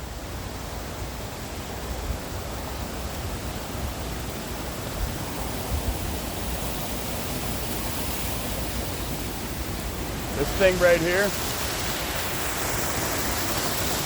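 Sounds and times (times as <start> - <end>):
waterfall rushing: 4.5 - 14.0.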